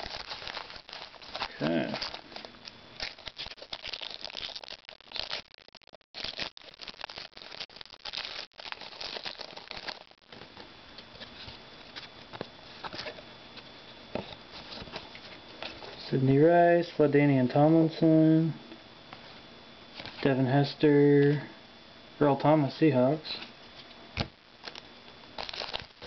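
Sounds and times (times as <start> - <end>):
wrapper crinkling and tearing: 0.0 - 10.4, 24.6 - 24.8, 25.4 - 26.0.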